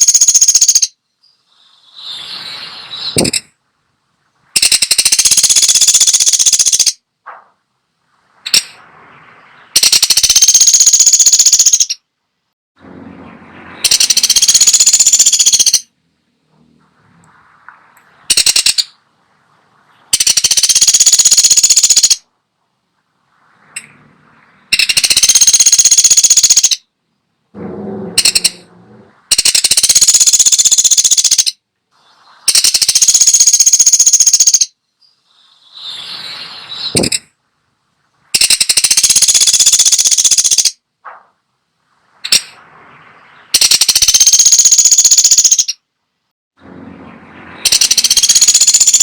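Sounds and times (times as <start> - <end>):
woodpecker rattling: 0.0 - 1.0, 4.6 - 7.0, 8.4 - 8.8, 9.6 - 12.1, 13.8 - 15.9, 18.0 - 19.0, 20.1 - 22.3, 24.6 - 26.9, 27.6 - 31.6, 32.5 - 34.8, 36.9 - 37.3, 38.3 - 41.2, 42.2 - 42.6, 43.4 - 45.8, 47.6 - 49.0.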